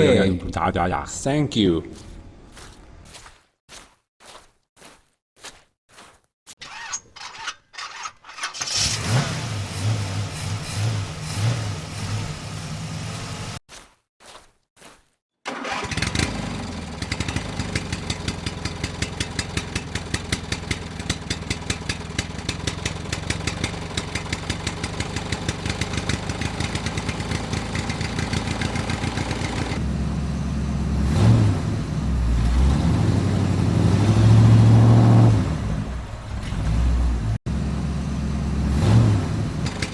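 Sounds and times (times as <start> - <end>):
engine starting clicks: 6.6 - 9.4, 15.4 - 16.4
engine running: 8.5 - 13.6, 15.5 - 39.9.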